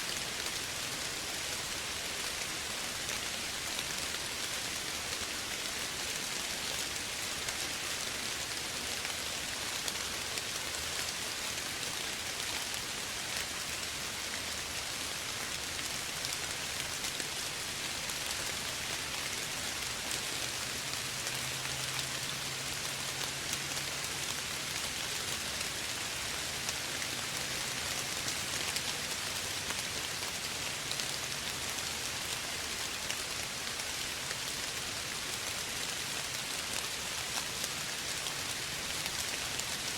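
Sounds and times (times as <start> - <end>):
soft steady rain: 0.0 - 39.9.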